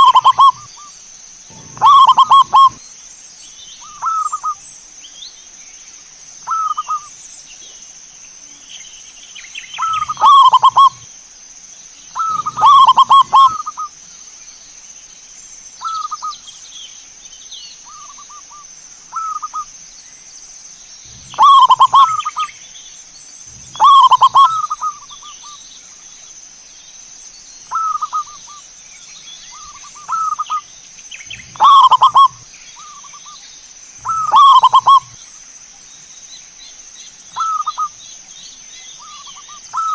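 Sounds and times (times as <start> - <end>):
doves cooing: 0.0 - 0.7, 1.5 - 2.8, 9.8 - 11.1, 12.2 - 13.9, 21.1 - 22.5, 23.5 - 25.3, 29.6 - 30.6, 31.2 - 33.2, 34.0 - 35.2.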